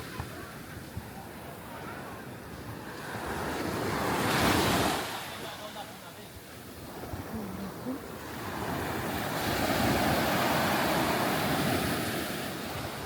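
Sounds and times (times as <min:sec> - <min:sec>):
wave breaking on beach: 0:08.2 - 0:13.0.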